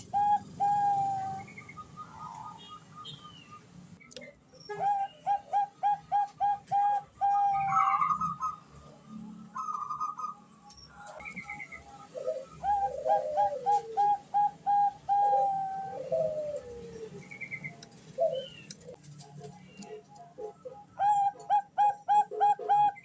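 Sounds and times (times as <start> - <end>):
dove cooing: 0.0 - 3.0, 4.7 - 8.6, 11.0 - 19.0, 19.8 - 23.0.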